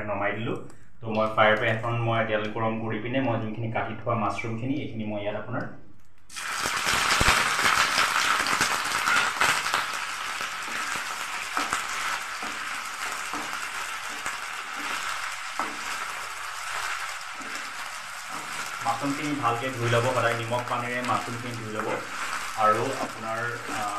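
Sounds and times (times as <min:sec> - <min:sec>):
mushrooms sizzling in hot oil: 0:06.3 - 0:23.9.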